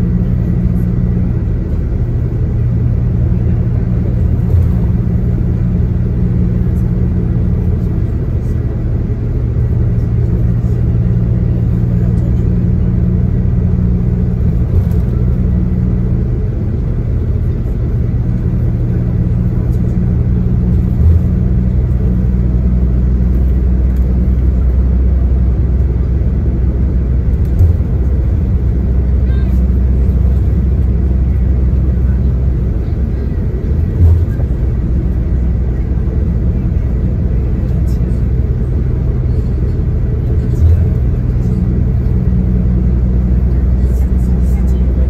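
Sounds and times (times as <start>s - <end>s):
bus engine running: 0.0s - 45.0s
road rumble: 0.0s - 45.0s
thumps from the road: 27.4s - 28.0s.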